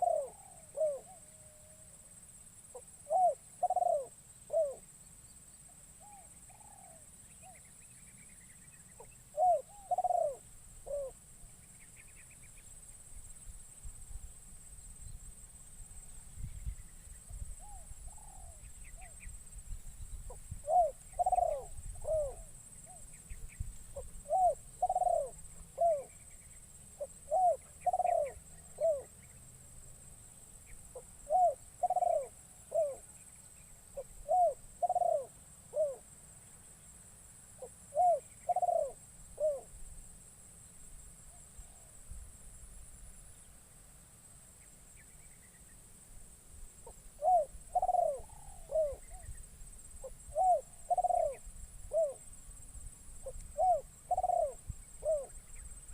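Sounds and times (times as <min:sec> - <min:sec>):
dove cooing: 0:00.0 - 0:01.9, 0:02.7 - 0:04.8, 0:06.0 - 0:07.6, 0:09.0 - 0:11.2, 0:17.6 - 0:19.2, 0:20.3 - 0:23.0, 0:24.0 - 0:26.2, 0:27.0 - 0:29.1, 0:30.9 - 0:33.1, 0:34.0 - 0:36.1, 0:37.6 - 0:39.7, 0:46.8 - 0:49.3, 0:50.0 - 0:52.2, 0:53.2 - 0:55.4.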